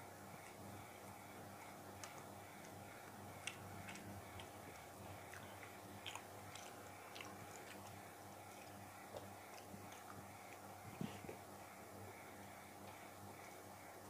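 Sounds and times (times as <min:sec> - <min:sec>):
steady low hum: 0:00.0 - 0:14.0
chewing with mouth clicks: 0:01.8 - 0:11.5.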